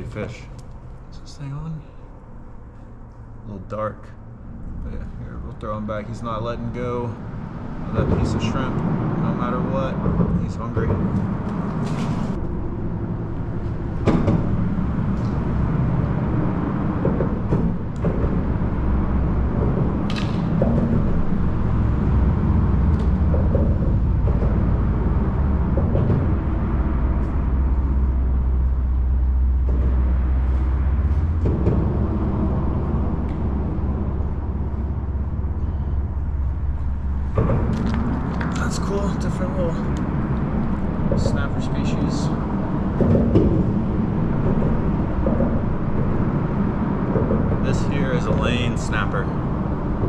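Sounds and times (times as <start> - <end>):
traffic rumbling over bridge: 0.0 - 50.0
sharp knocks: 7.9 - 12.4, 13.8 - 35.5, 36.3 - 49.5.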